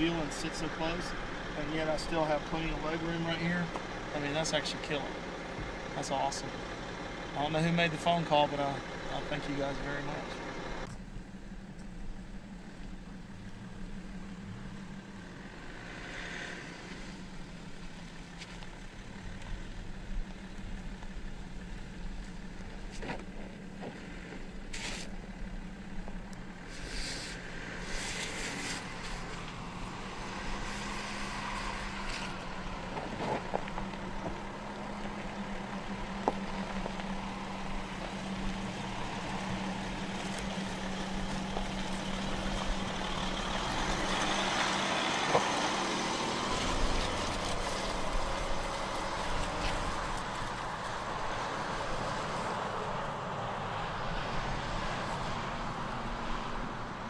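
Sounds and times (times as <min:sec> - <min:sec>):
car engine running at low revs: 0:00.0 - 0:57.0.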